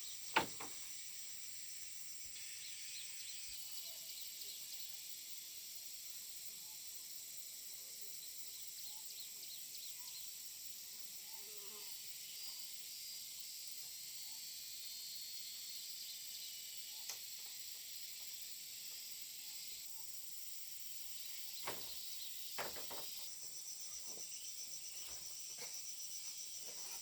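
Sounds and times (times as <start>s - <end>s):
insects chorus: 0.0s - 27.0s
pulsing insect call: 0.0s - 27.0s
sharp knocks: 0.3s - 0.9s, 22.6s - 23.2s.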